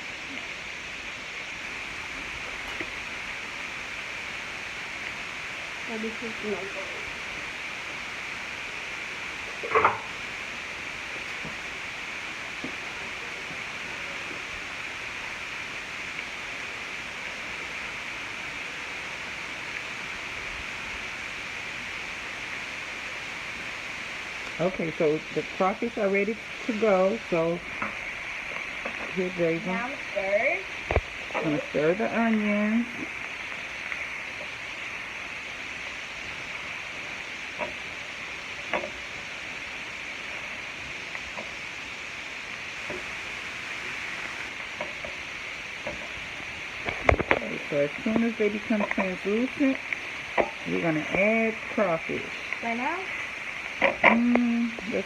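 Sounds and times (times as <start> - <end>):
vegetables sizzling in a pan: 0.0 - 55.0.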